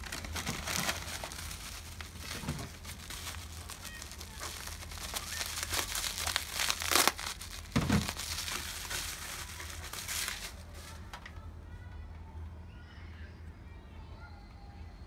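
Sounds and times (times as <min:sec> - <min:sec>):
packaging crinkling: 0:00.0 - 0:11.3.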